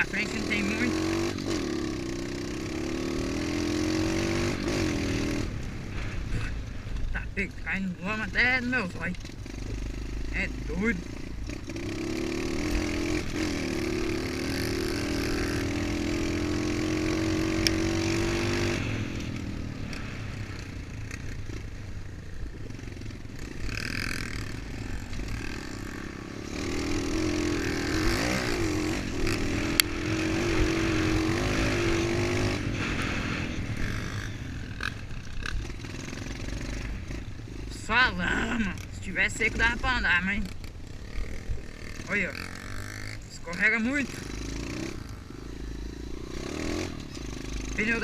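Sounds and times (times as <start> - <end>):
motocross bike engine revving: 0.0 - 6.6, 7.6 - 48.0.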